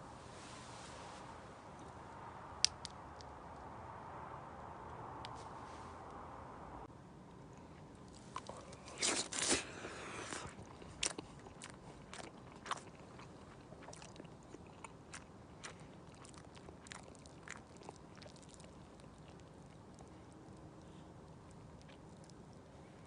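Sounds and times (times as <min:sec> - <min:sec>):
person chewing crunchy food: 0:07.8 - 0:20.8.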